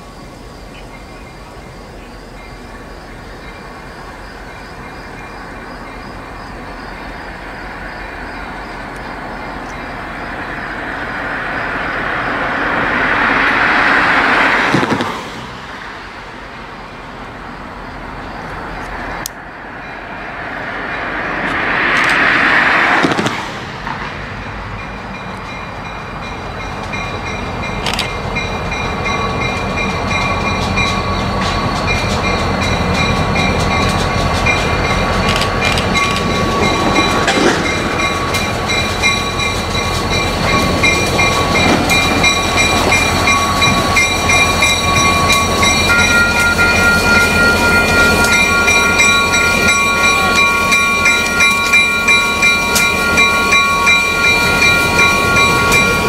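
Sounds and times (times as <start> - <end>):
locomotive engine and wheel noise: 0.0 - 56.0
wheels clickety-clack: 13.7 - 15.6, 26.6 - 56.0
steady whining tones: 16.8 - 56.0.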